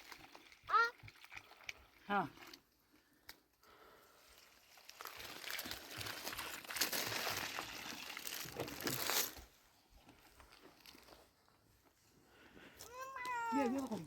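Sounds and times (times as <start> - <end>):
crinkling crunching rustle: 4.4 - 11.6.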